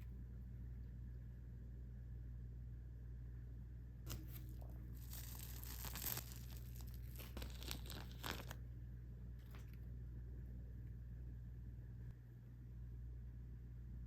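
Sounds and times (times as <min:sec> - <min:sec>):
plastic packaging crinkling and tearing: 0:04.1 - 0:08.6.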